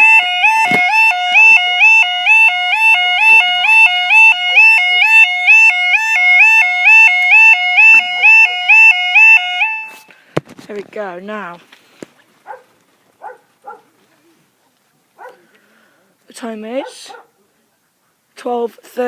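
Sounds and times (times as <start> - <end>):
two-tone level crossing alarm: 0.0 - 10.1.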